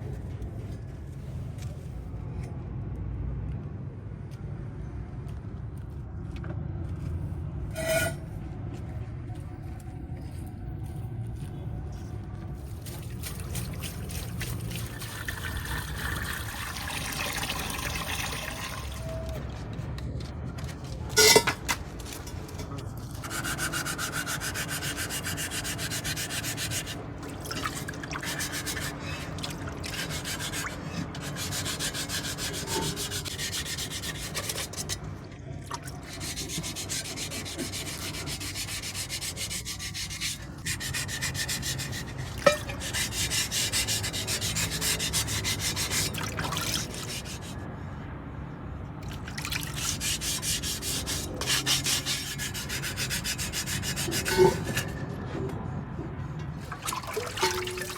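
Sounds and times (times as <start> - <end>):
sanding metal wheel rim: 7.8 - 8.2, 21.2 - 35.0, 36.0 - 47.6, 49.7 - 55.1.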